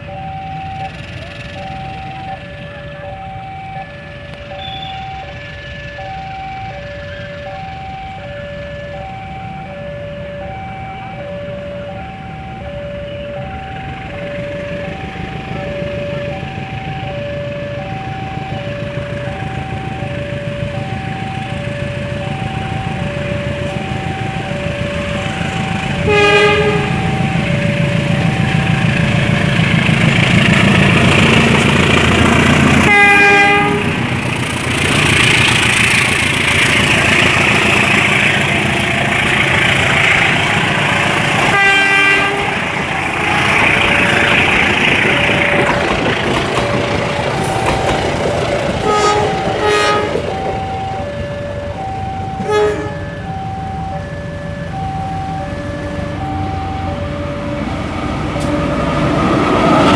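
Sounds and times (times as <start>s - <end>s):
two-note warning signal: 0.0s - 30.2s, 48.8s - 58.6s
train carriages rumbling: 0.0s - 59.9s
train horn blasts: 25.2s - 29.1s, 32.6s - 34.2s, 41.3s - 44.5s, 48.8s - 50.4s, 52.4s - 53.4s.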